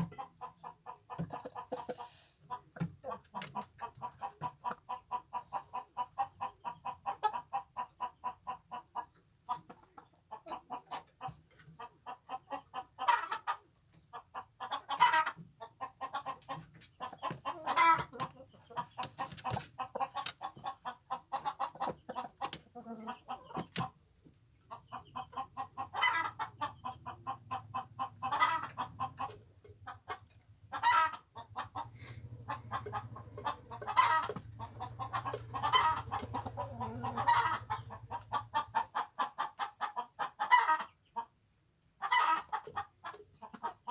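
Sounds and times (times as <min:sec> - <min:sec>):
chickens clucking: 0:00.0 - 0:43.9
chicken squawks: 0:14.6 - 0:23.6, 0:24.9 - 0:29.4, 0:30.1 - 0:41.0, 0:42.0 - 0:43.2.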